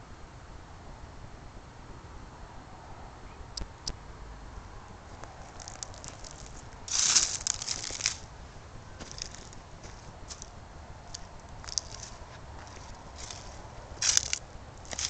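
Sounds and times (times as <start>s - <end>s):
animal tearing and crunching grass: 5.4s - 8.3s, 11.2s - 15.0s.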